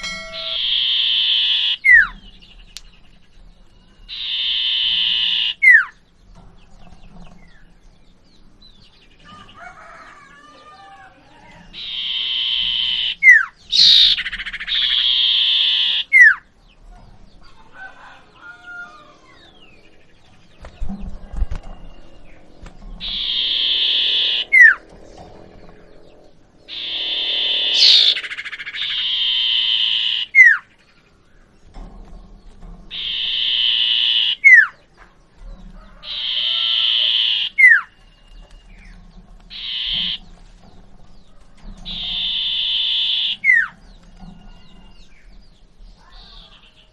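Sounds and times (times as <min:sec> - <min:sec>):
bird singing buzzy note and whistle: 0:00.0 - 0:03.0, 0:03.7 - 0:06.0, 0:11.7 - 0:16.4, 0:21.5 - 0:24.9, 0:25.6 - 0:30.7, 0:32.9 - 0:34.8, 0:39.5 - 0:40.2, 0:41.8 - 0:43.7.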